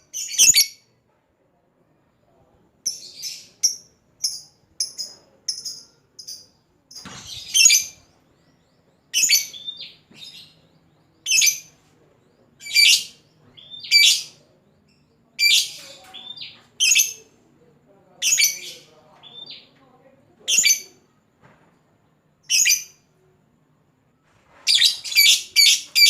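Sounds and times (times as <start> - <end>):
lovebird chirping and calling: 0.0 - 0.8, 2.8 - 8.4, 9.1 - 10.6, 11.2 - 11.7, 12.6 - 14.4, 15.4 - 17.2, 18.2 - 19.7, 20.5 - 21.0, 22.4 - 23.0, 24.7 - 26.0.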